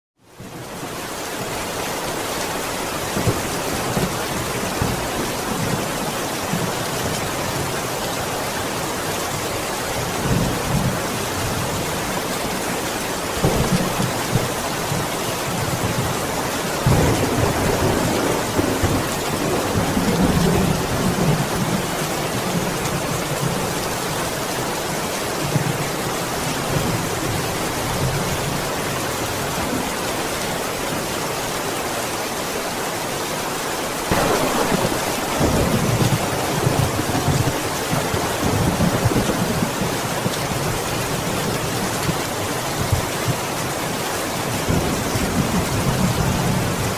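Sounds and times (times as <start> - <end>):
heavy rain falling: 0.2 - 46.9
rolls of thunder: 34.1 - 39.7.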